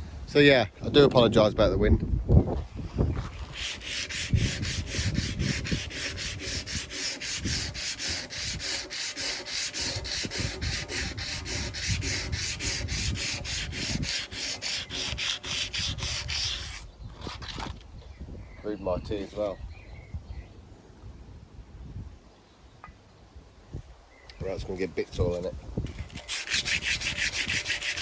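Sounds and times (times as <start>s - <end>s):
sandpaper rubbing on metal: 3.2s - 17.4s, 25.9s - 28.0s.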